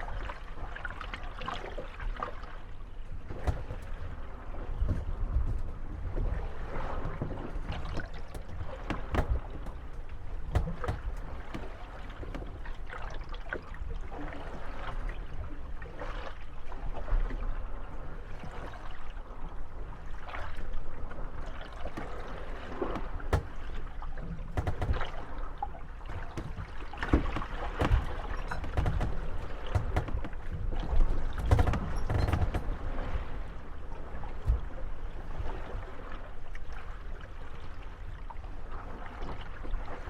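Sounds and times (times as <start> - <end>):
wooden boat hulls creaking: 0.0 - 16.4, 17.0 - 35.8
water lapping: 0.0 - 40.0
boats knocking together: 2.9 - 13.1, 21.6 - 34.8.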